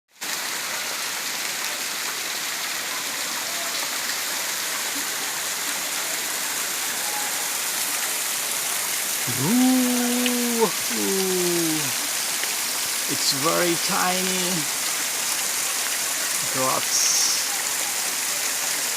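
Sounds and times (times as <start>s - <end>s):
waterfall rushing: 0.3s - 18.9s
person's rising ooh: 9.3s - 12.0s.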